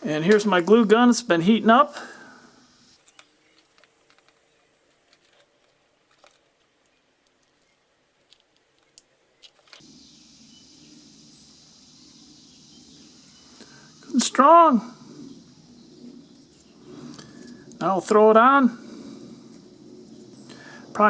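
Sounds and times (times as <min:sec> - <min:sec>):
faint background hiss: 0:00.0 - 0:21.0
small clicks and handling noise: 0:03.0 - 0:09.9.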